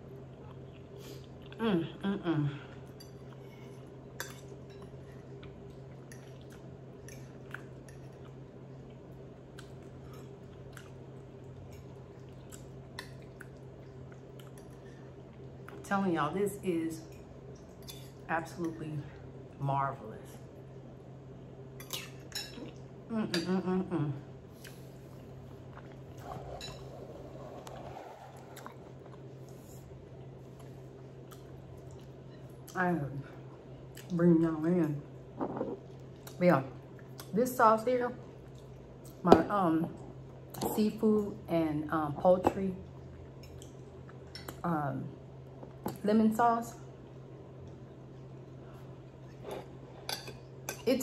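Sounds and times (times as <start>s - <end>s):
steady low hum: 0.0s - 51.0s
person chewing: 5.3s - 15.8s, 24.6s - 32.8s.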